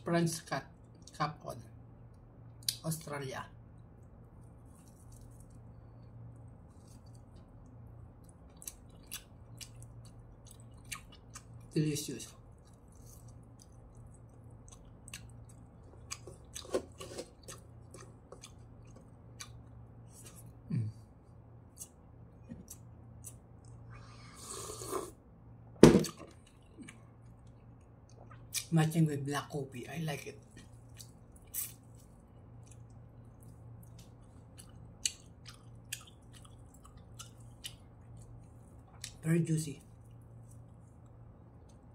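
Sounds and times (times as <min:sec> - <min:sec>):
steady low hum: 0:00.0 - 0:41.9
wet chewing clicks: 0:04.7 - 0:11.7, 0:12.4 - 0:16.7, 0:17.4 - 0:19.7, 0:30.8 - 0:39.2.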